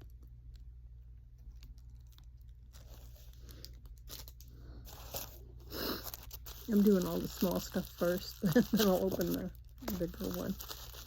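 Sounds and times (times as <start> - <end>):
wrapping crinkling and rustling: 0.1 - 11.0.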